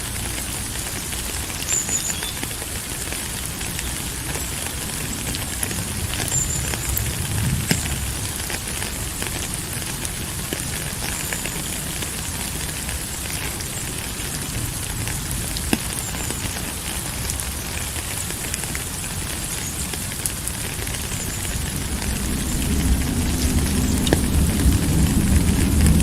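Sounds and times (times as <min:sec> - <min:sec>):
rain hissing: 0:00.0 - 0:26.0
raindrops tapping: 0:00.0 - 0:26.0
low rumble: 0:21.4 - 0:26.0.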